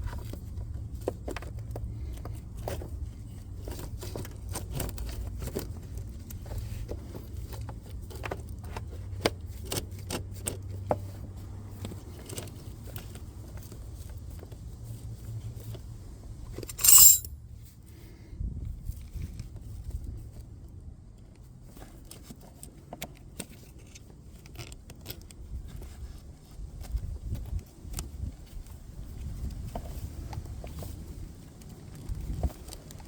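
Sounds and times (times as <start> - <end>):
metallic clicks of spanner and cables: 16.7 - 17.3
short scraping rasp: 16.7 - 17.3.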